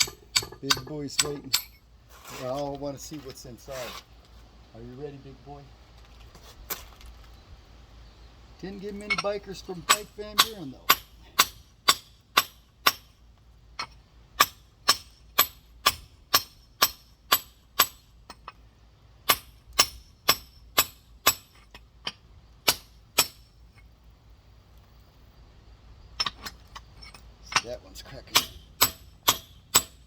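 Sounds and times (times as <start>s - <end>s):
hammer striking rock: 0.0s - 1.8s, 9.8s - 13.2s, 13.8s - 18.5s, 19.3s - 23.5s, 28.3s - 30.0s.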